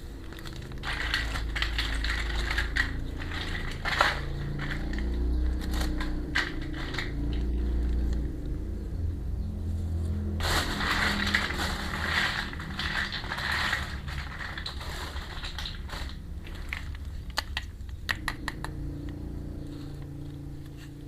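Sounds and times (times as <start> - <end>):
plastic packaging crinkling: 0.0 - 8.3, 10.4 - 17.7.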